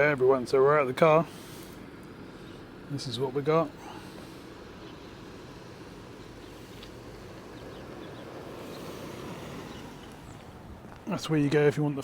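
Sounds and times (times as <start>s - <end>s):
wind blowing across microphone: 4.7s - 12.0s.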